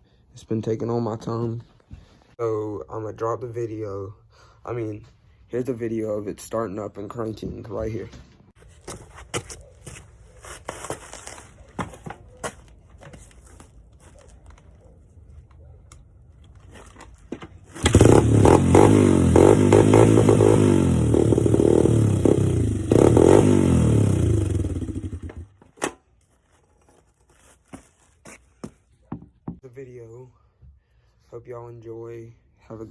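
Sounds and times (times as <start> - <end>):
dirt bike engine running: 17.7 - 25.6.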